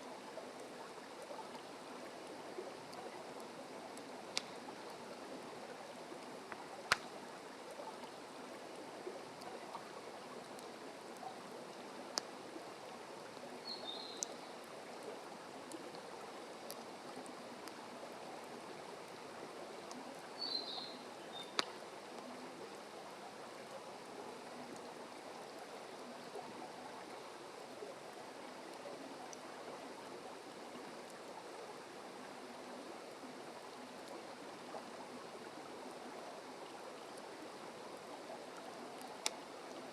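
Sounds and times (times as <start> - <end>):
wood fire crackling and popping: 4.0 - 4.7, 6.5 - 7.1, 21.6 - 21.8.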